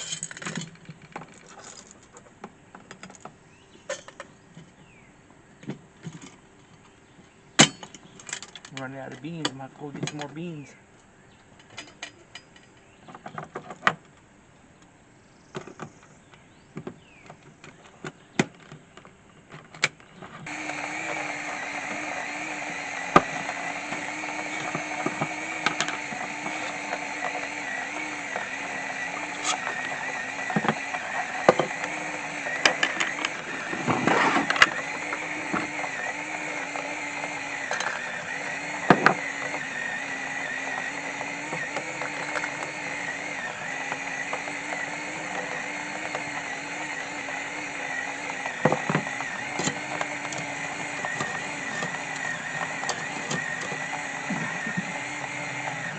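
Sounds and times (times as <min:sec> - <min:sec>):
electric coffee grinder: 0:20.4 - 0:55.9.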